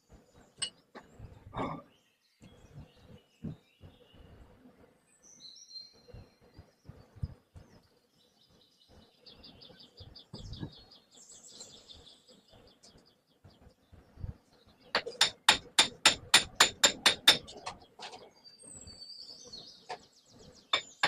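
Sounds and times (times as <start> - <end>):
small birds chirping: 0.0 - 21.0
low knocks and thuds: 10.3 - 10.8.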